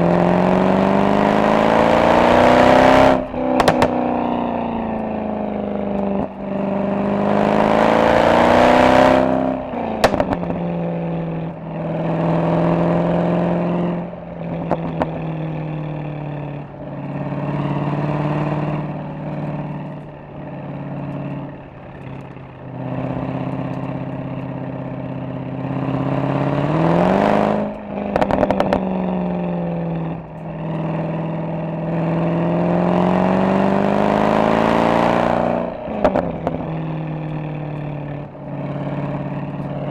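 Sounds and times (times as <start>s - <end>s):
car exhaust accelerating: 0.0s - 39.9s
exhaust crackles and pops: 1.6s - 6.7s, 8.8s - 11.8s, 14.2s - 32.2s, 35.4s - 39.9s.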